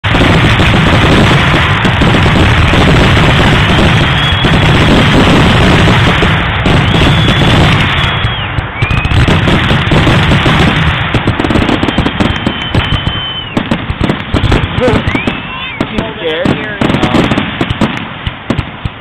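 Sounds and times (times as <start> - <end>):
fireworks booming and crackling: 0.0 - 19.0
fireworks whistling: 0.0 - 19.0.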